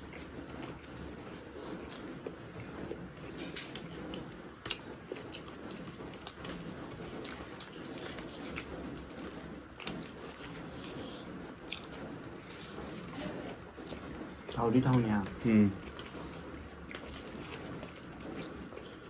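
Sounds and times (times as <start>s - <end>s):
chewing and wet mouth smacks: 15.8s - 19.0s.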